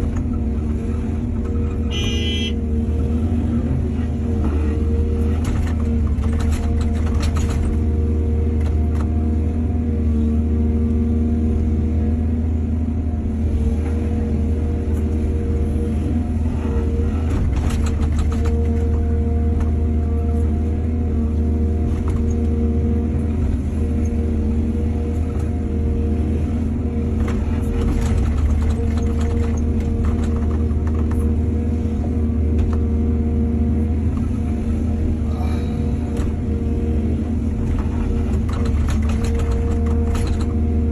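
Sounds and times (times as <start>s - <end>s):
diesel excavator engine running: 0.0s - 40.9s.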